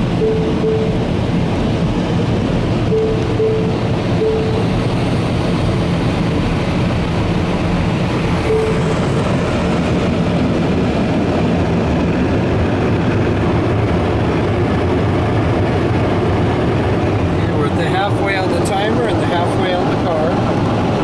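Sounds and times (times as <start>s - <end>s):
car wash dryers blowing air: 0.0s - 21.0s
low hum: 0.0s - 21.0s.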